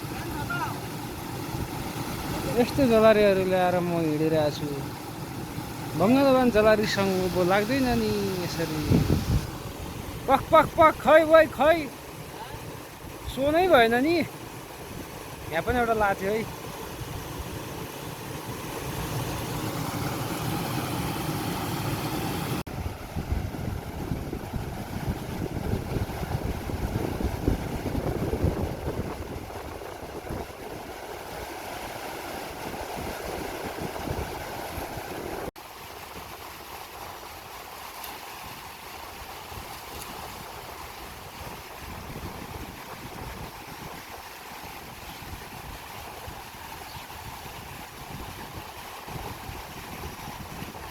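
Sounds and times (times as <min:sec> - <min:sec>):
rushing river water: 0:00.0 - 0:50.9
wind buffeting microphone: 0:07.4 - 0:11.0, 0:22.7 - 0:31.4, 0:32.4 - 0:35.5, 0:40.3 - 0:50.9.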